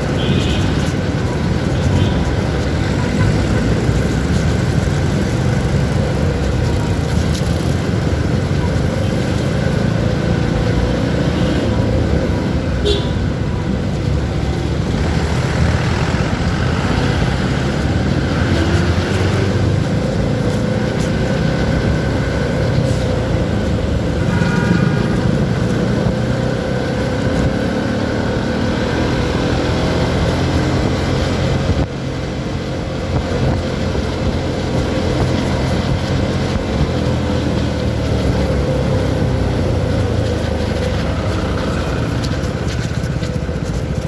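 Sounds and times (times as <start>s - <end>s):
motorcycle engine: 0.0s - 44.0s
road noise: 0.0s - 44.0s
wind noise: 11.4s - 44.0s.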